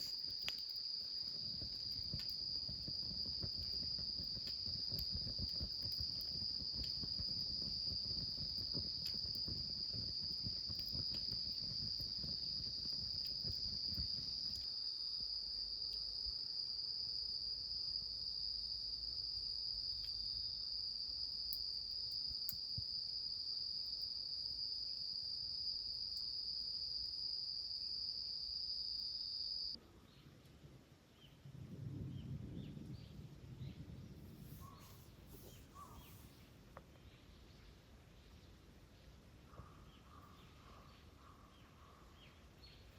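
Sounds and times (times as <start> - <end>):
low crackling: 0.0 - 14.8
insects chirping in chorus: 0.0 - 29.8, 34.5 - 36.3.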